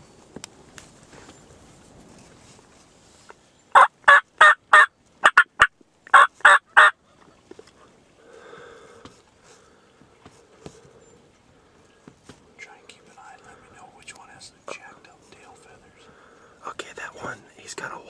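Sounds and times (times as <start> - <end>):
turkey yelping: 3.8 - 7.0.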